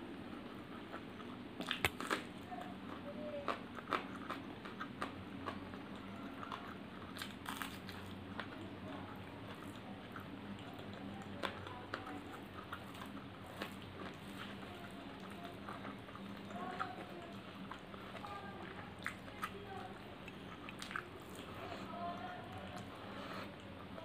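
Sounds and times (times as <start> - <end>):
close chewing and crunching: 0.0 - 24.0.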